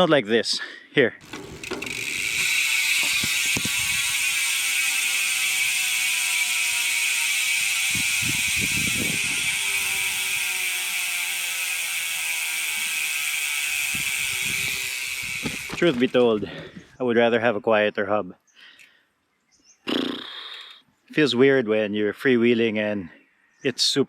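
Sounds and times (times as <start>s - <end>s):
bike freehub ratcheting buzz: 1.2s - 16.7s.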